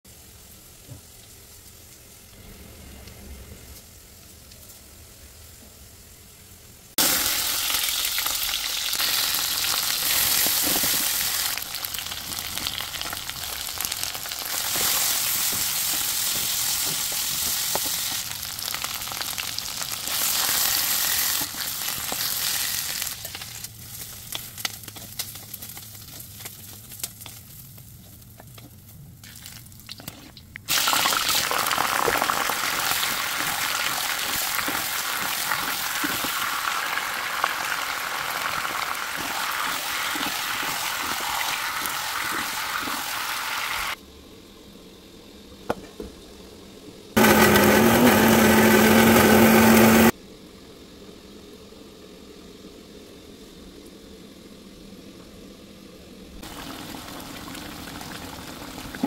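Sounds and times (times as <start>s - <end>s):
food sizzling in hot oil: 6.9s - 28.2s, 29.2s - 44.0s, 56.4s - 59.0s.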